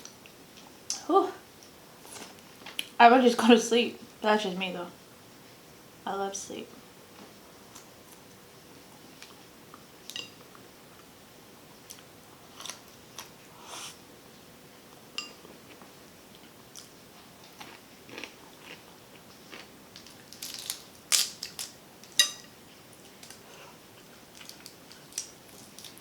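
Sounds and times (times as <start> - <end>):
person chewing and biting: 17.5 - 21.6.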